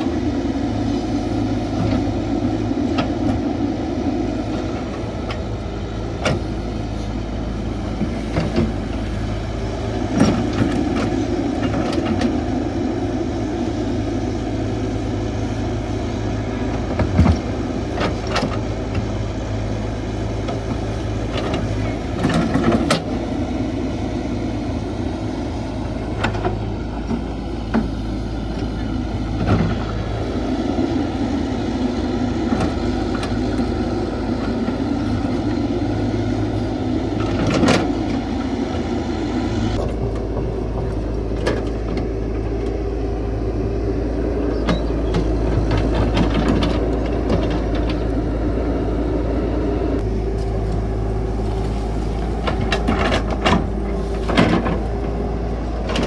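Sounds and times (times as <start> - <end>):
excavator diesel engine running: 0.0 - 56.0
knocks and clanks: 51.6 - 55.2.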